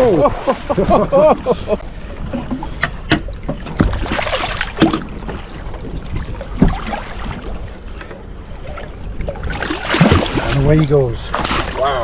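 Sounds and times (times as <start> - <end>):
water around boat hull: 0.0 - 12.0
wind rumble on microphone: 0.0 - 12.0
knocks and clicks from boat gear: 2.2 - 5.5, 6.4 - 7.0.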